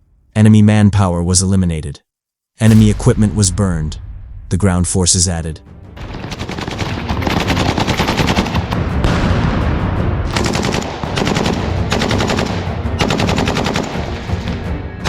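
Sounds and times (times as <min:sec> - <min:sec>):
automatic gunfire: 0:06.0 - 0:08.8, 0:10.3 - 0:14.5.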